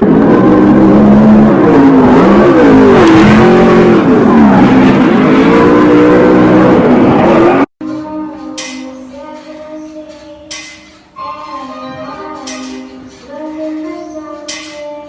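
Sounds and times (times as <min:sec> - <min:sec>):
car engine revving hard: 0:00.0 - 0:07.7.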